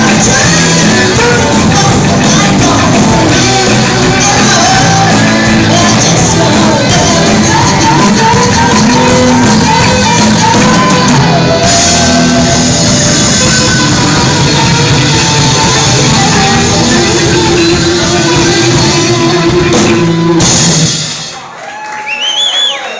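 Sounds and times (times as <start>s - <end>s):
shouted singing: 0.0s - 20.3s
live rock band playing: 0.0s - 21.5s.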